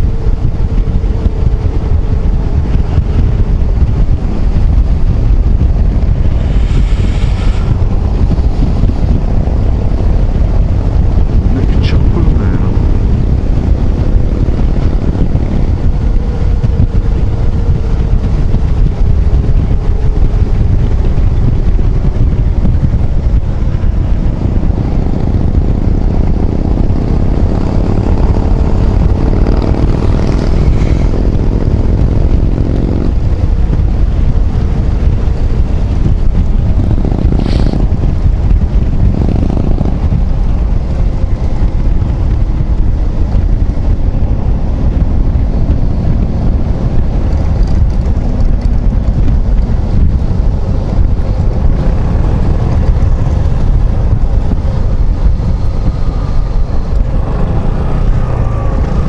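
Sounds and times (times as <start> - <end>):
wind buffeting microphone: 0.0 - 59.0
scooter engine: 43.6 - 59.0.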